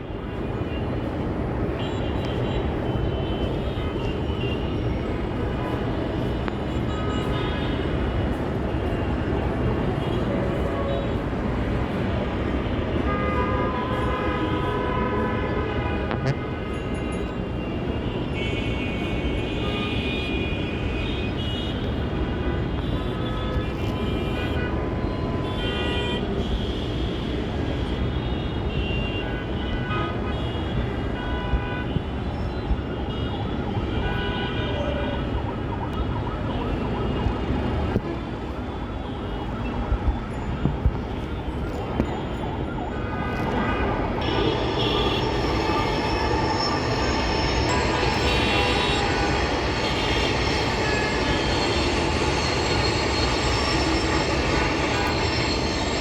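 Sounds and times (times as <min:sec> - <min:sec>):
heavy road traffic rumbling: 0:00.0 - 0:56.0
vehicle horns: 0:43.0 - 0:56.0.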